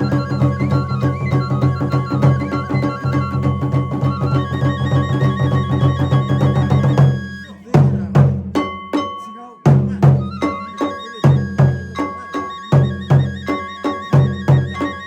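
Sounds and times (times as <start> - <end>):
bamboo flute: 0.0 - 9.2, 9.9 - 15.0
taiko drums: 0.0 - 15.0.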